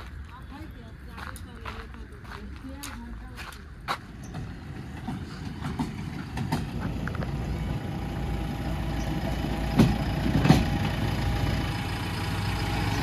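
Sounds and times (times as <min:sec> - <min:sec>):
diesel engine running: 0:03.4 - 0:13.0.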